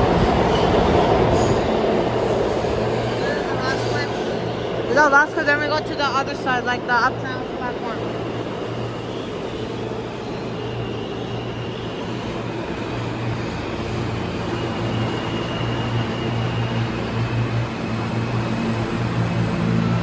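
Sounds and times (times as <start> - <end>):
subway train rumbling: 0.0 - 20.0.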